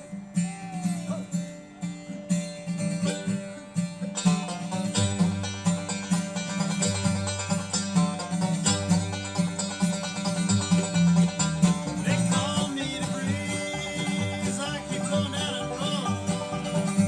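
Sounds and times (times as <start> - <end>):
plucked acoustic strings: 0.0 - 17.0
low bass line: 5.0 - 17.0.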